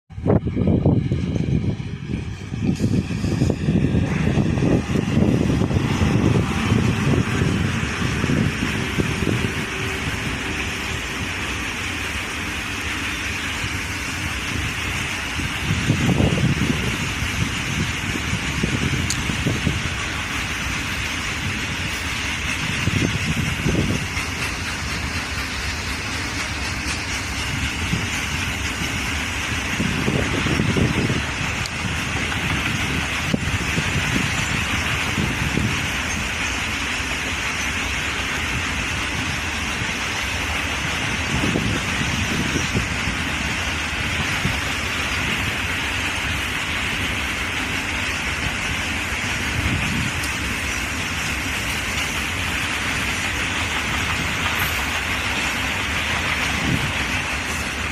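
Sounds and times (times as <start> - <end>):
low rumble: 0.1 - 35.9
train running: 0.1 - 57.9
heavy low pulses: 0.2 - 11.6.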